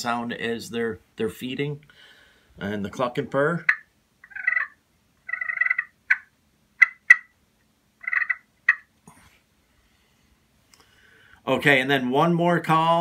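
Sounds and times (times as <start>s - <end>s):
turkey call rolling purrs: 3.6s - 7.3s, 8.0s - 8.9s
turkey call clucks: 3.6s - 7.4s, 8.0s - 8.9s.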